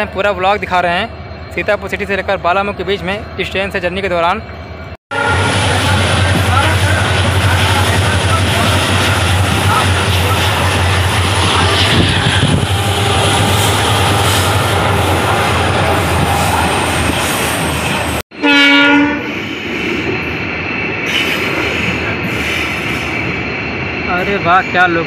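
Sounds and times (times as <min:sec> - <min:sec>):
passenger train running on track: 0:00.0 - 0:25.0
train horn blast: 0:05.1 - 0:06.8, 0:11.7 - 0:16.6, 0:18.4 - 0:19.4.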